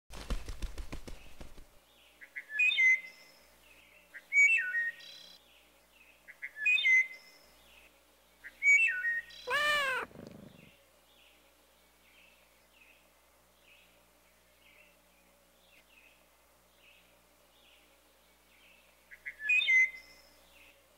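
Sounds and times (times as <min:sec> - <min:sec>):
small bird chirping: 0:08.4 - 0:10.8
cat meowing: 0:09.5 - 0:10.7.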